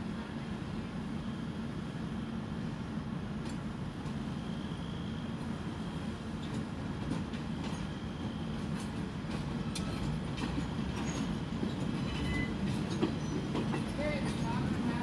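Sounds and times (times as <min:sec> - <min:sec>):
train coaches rumbling: 0:05.3 - 0:15.0
wheels clicking over rail joints: 0:08.6 - 0:15.0
high wheel squeals: 0:11.0 - 0:13.5.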